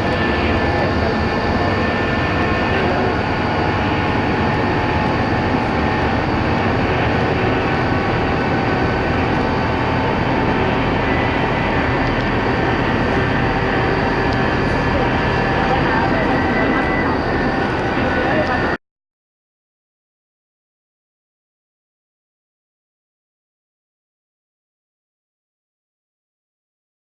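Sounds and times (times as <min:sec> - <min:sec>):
faint whining tones: 0:00.0 - 0:18.8
road noise: 0:00.0 - 0:18.8
vehicle engine rumbling: 0:00.0 - 0:18.8.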